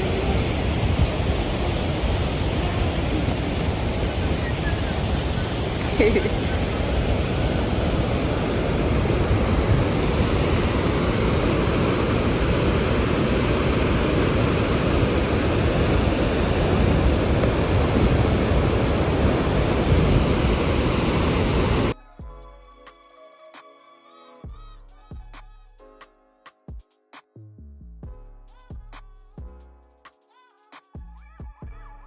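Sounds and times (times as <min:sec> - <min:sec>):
waterfall roaring: 0:00.0 - 0:21.9.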